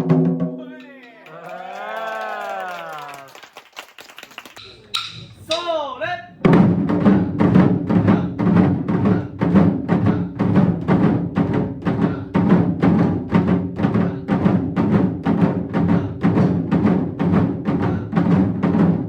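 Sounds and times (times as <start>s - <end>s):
taiko drums beating: 0.0s - 0.6s, 4.6s - 19.0s.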